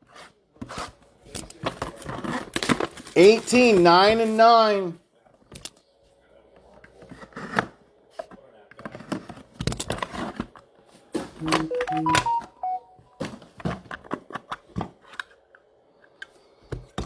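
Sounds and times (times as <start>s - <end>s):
electronic beeps: 11.4s - 13.1s.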